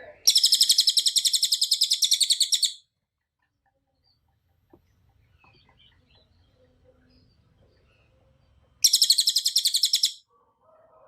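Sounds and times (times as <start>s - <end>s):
faint background noise: 0.0s - 11.0s
songbird rapid trill: 0.3s - 2.8s, 8.8s - 10.2s.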